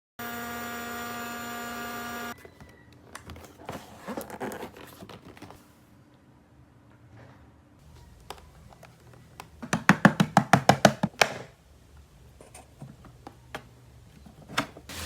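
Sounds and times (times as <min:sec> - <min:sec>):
plastic packaging crinkling: 0:02.4 - 0:05.7.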